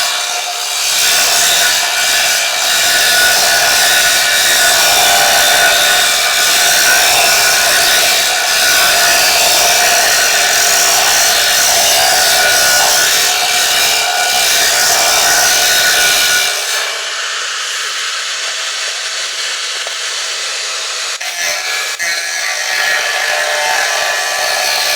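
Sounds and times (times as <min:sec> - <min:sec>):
power tool running: 0:00.0 - 0:24.9.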